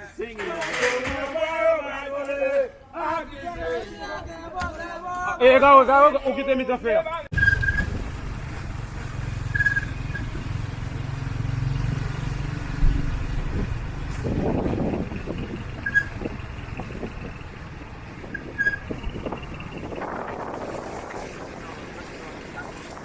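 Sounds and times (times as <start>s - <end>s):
vehicle engine running: 7.3s - 23.0s.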